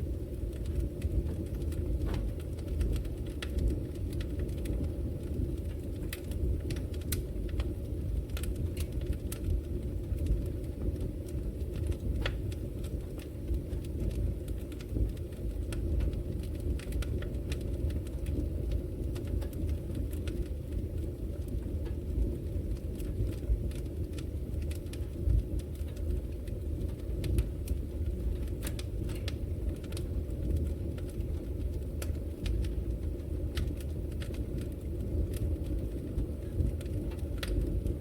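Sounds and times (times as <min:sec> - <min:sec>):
wood fire crackling and popping: 0:00.0 - 0:38.0.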